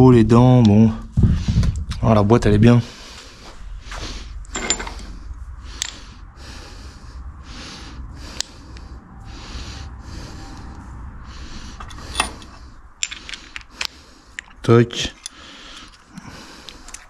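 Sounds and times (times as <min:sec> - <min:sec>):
heavy breathing: 0:01.2 - 0:01.9, 0:02.8 - 0:17.0
metallic clicks of engine parts: 0:04.4 - 0:06.1, 0:08.3 - 0:08.6, 0:11.8 - 0:17.0.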